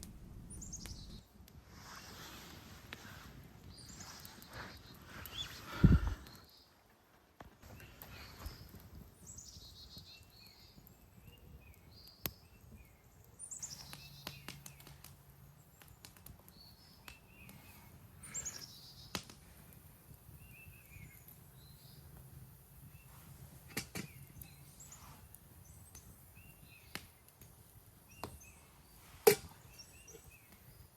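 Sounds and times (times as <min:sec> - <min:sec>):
bird chirps: 0:03.8 - 0:06.7, 0:07.7 - 0:15.0, 0:15.6 - 0:19.2, 0:28.1 - 0:30.9
songbird trills: 0:07.7 - 0:15.0, 0:15.6 - 0:19.2, 0:28.0 - 0:30.9.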